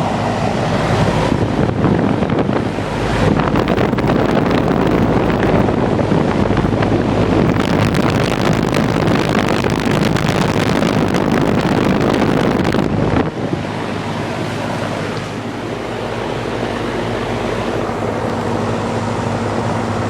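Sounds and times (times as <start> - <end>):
air conditioner fan rushing: 0.0 - 20.0
low hum: 2.9 - 13.0.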